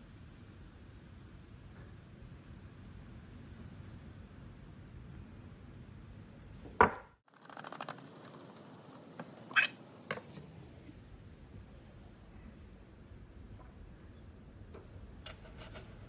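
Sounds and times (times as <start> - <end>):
rattle of small clicks: 7.3 - 8.7.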